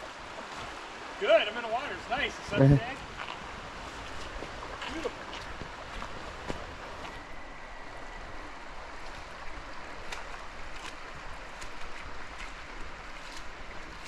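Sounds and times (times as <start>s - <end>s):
river water rushing: 0.0s - 14.0s
light footsteps on trail: 3.0s - 7.4s, 8.3s - 14.0s.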